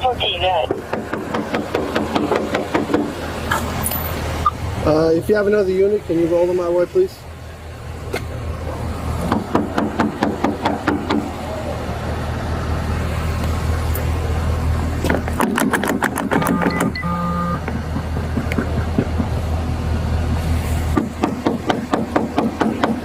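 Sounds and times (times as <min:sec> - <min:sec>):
vehicle engine humming: 0:00.0 - 0:23.0
short electronic beep: 0:16.5 - 0:17.6.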